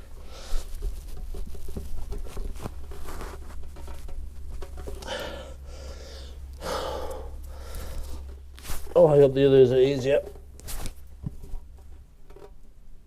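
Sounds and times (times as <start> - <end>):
low hum: 3.4 - 12.1
man breathing heavily: 5.0 - 8.3.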